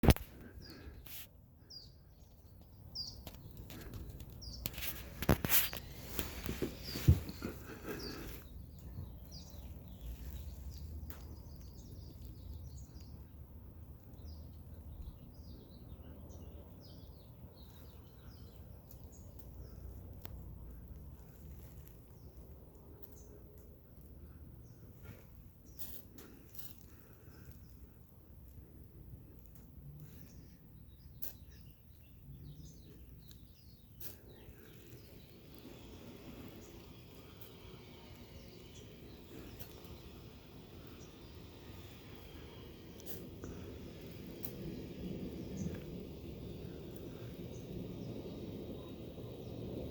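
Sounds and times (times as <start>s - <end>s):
sharp clicks: 0.0s - 0.6s
low outdoor rumble: 0.0s - 49.9s
small birds chirping: 0.0s - 49.9s
rustling: 2.4s - 12.4s, 20.2s - 23.4s, 24.0s - 30.6s, 32.9s - 47.9s
steady low rumble: 26.4s - 49.9s.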